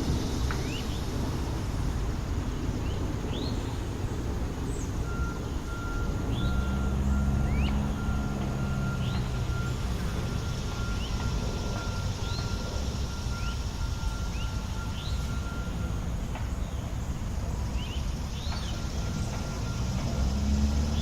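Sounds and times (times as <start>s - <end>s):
distant city traffic rumble: 0.0s - 21.0s
bird chirping: 4.6s - 15.8s, 16.4s - 21.0s.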